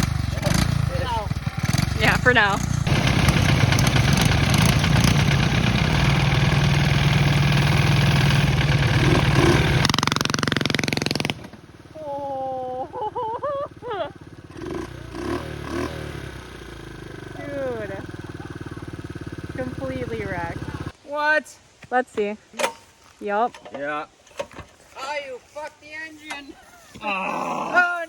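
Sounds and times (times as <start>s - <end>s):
mini bike engine running hard: 0.0s - 20.9s
people shouting: 17.4s - 19.0s, 27.0s - 28.0s.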